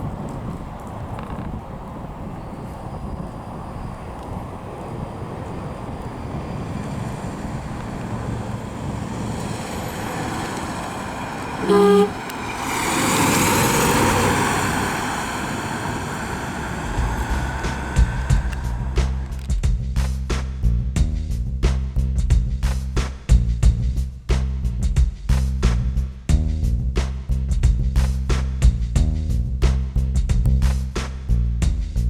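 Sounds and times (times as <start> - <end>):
car engine running: 4.8 - 19.6
car horn blast: 9.4 - 19.2.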